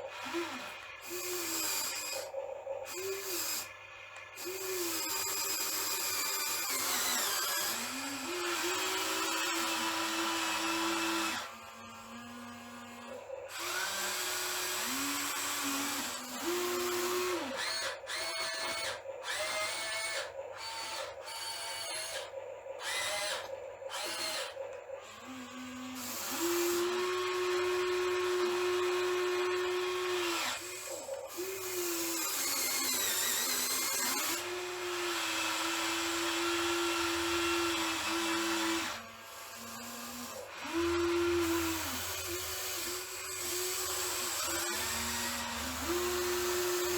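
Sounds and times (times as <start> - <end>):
small electric motors whining: 0.0 - 46.9.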